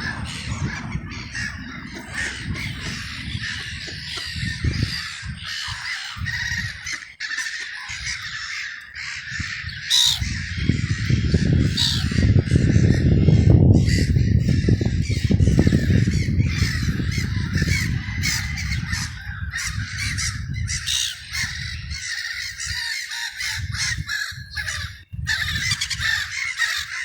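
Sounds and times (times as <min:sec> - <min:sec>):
low rumble: 0:00.0 - 0:06.8
crows cawing: 0:00.0 - 0:27.0.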